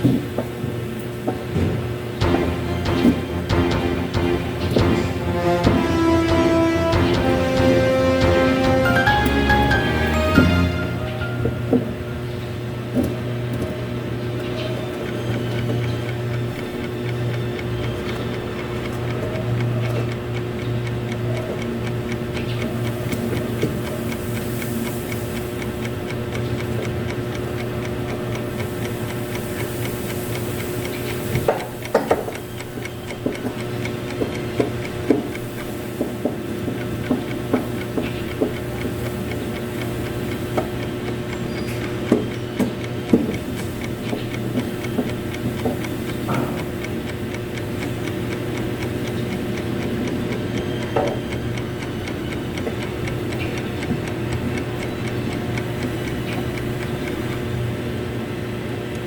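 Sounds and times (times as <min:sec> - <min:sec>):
fast regular ticking: 0:02.0 - 0:11.4, 0:14.1 - 0:57.8
steady hum: 0:02.0 - 0:13.5.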